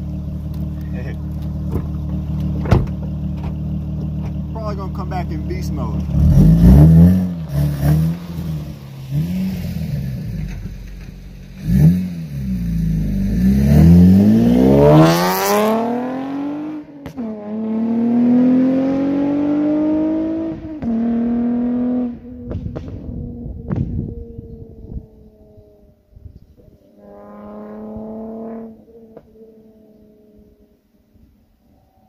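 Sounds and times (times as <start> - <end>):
car engine revving hard: 6.0 - 10.5, 11.6 - 22.9, 27.0 - 29.3.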